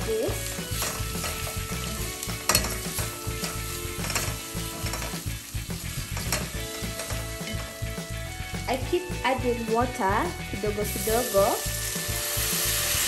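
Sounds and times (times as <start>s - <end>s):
food sizzling in a pot: 0.0s - 13.0s
utensil scraping a pot: 0.6s - 5.2s.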